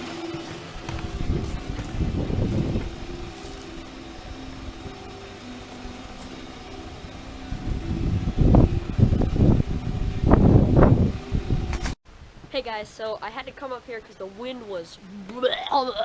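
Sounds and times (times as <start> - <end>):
faint background music: 0.0 - 11.9, 12.5 - 16.0
wind buffeting microphone: 0.7 - 5.0, 6.3 - 12.5.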